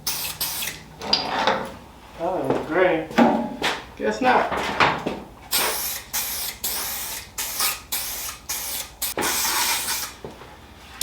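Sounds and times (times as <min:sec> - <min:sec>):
spray can hissing: 0:00.1 - 0:00.8, 0:05.5 - 0:10.2.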